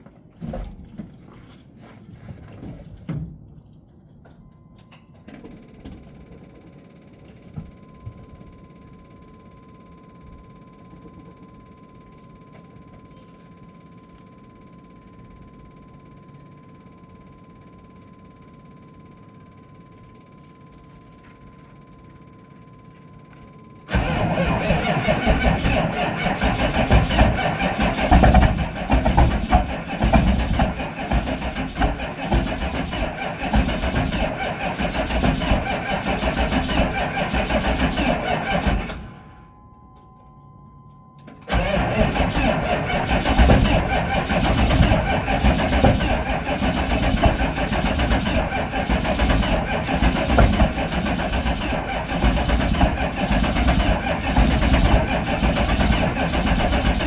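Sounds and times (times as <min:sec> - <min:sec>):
diesel engine knocking: 0:23.9 - 0:38.9, 0:41.5 - 0:57.0.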